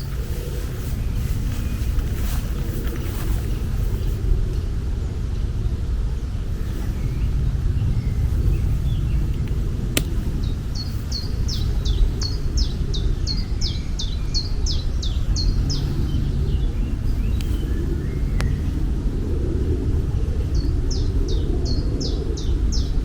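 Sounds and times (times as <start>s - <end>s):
sharp click: 9.3s - 10.2s.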